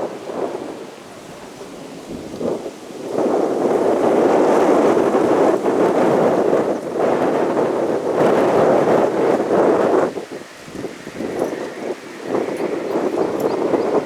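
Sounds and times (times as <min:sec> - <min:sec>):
jet engine rushing: 0:04.5 - 0:14.0.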